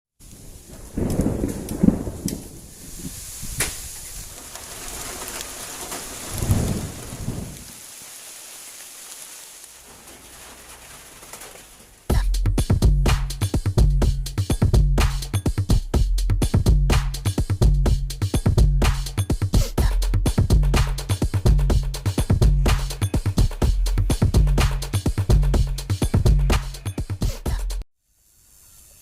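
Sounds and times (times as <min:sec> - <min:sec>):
rain falling: 0:00.2 - 0:12.1
thunder rolling: 0:00.4 - 0:03.1, 0:06.1 - 0:07.8
music with a beat: 0:12.1 - 0:27.8.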